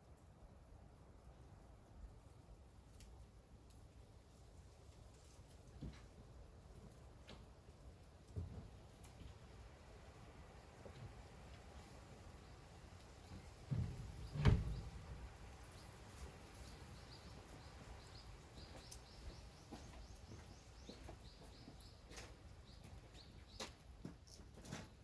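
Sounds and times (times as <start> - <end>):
dull low thump: 13.7 - 15.2
small bird chirping: 14.0 - 23.8.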